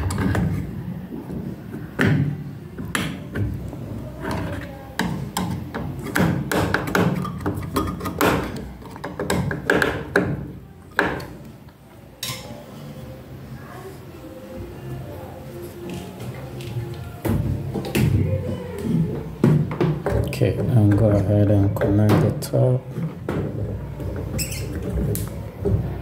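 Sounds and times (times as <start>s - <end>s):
plastic panels knocking and clicking: 4.3s - 11.3s.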